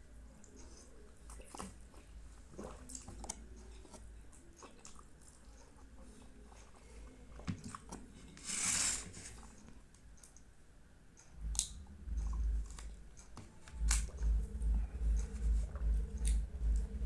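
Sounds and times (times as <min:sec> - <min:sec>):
person chewing: 0:11.2 - 0:17.0
low thumps: 0:11.4 - 0:13.1, 0:13.7 - 0:17.0.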